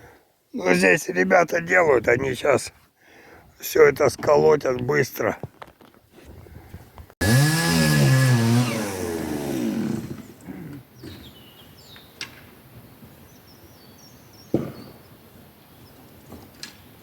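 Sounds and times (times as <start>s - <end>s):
power saw motor winding down: 7.2s - 10.4s.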